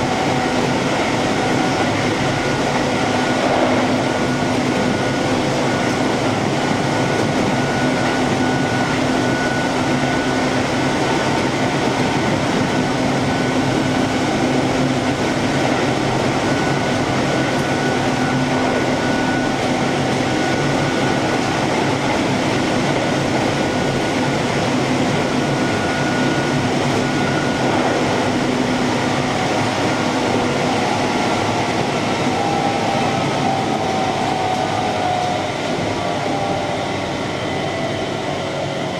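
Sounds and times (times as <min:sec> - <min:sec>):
electric train rolling: 0:00.0 - 0:38.9
train motor whine: 0:00.0 - 0:38.9.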